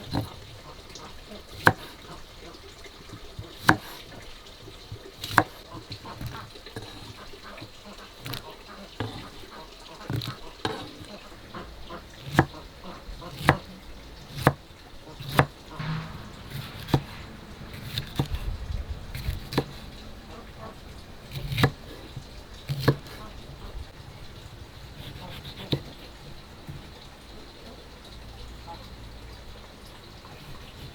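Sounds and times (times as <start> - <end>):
knife chopping on wooden board: 0.1 - 0.4, 1.5 - 2.0, 3.5 - 4.1, 5.2 - 5.6, 8.2 - 8.4, 9.0 - 9.4, 10.1 - 11.1, 12.2 - 12.6, 13.2 - 13.7, 14.4 - 14.6, 15.2 - 15.5, 19.2 - 19.8, 21.3 - 21.9, 22.7 - 23.3, 25.0 - 26.0.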